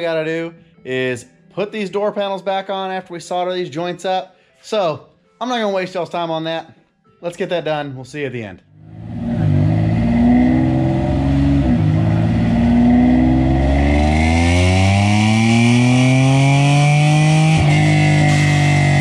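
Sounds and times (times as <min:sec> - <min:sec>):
car engine revving: 0:08.8 - 0:19.0.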